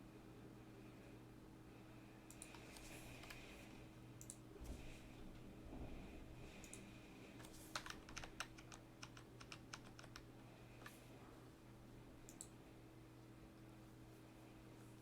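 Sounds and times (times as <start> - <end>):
low electrical hum: 0.0 - 15.0
typing on computer keyboard: 2.3 - 3.4, 7.4 - 11.0.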